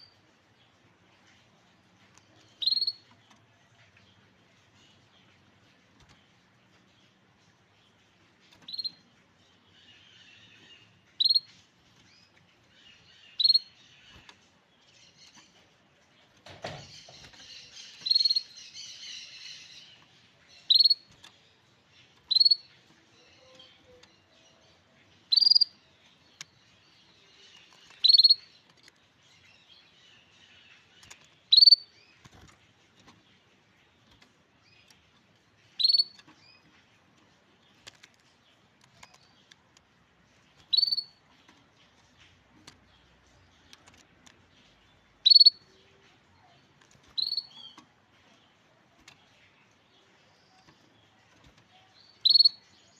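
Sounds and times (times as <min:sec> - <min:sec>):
soft bird twittering: 0:02.2 - 0:05.4, 0:07.8 - 0:15.7, 0:16.7 - 0:32.2, 0:34.6 - 0:37.0, 0:40.6 - 0:52.9
canary call notes: 0:45.2 - 0:45.7.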